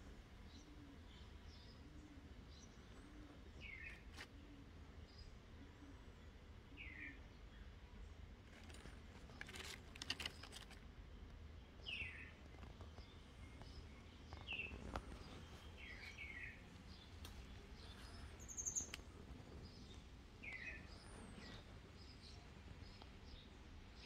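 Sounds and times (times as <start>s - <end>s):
faint bird chirps: 11.8s - 23.5s.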